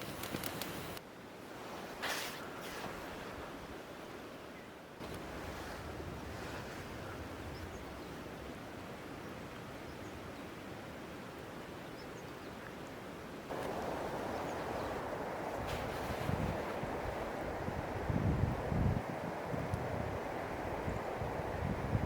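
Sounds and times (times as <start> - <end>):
wind: 0.0 - 22.0
surf: 5.0 - 8.6, 13.5 - 22.0.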